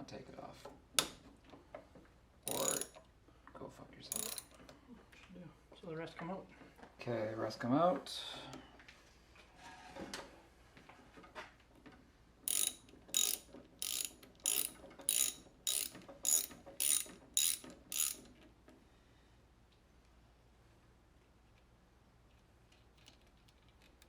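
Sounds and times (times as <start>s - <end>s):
hand ratchet wrench ratcheting: 2.5s - 3.0s, 4.1s - 4.6s, 12.5s - 18.3s.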